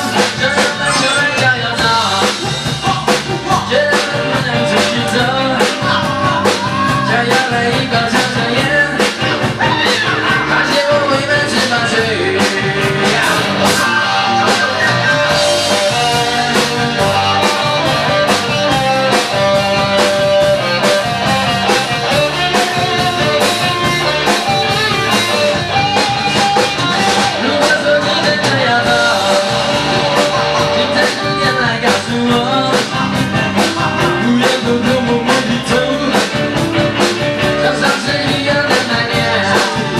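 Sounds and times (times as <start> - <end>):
drum beat: 0.0 - 39.9
guitar: 0.0 - 39.9
person singing: 0.0 - 39.9
rock band playing: 0.0 - 39.9.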